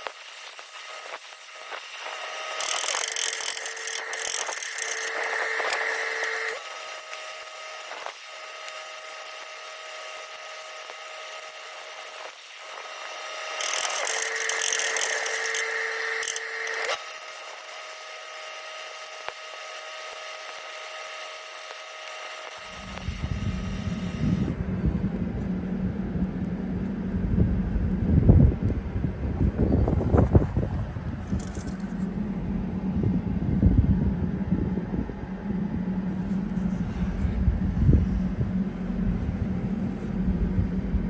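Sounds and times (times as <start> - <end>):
power tool whining: 0.0 - 24.6
low rumble: 24.5 - 41.0.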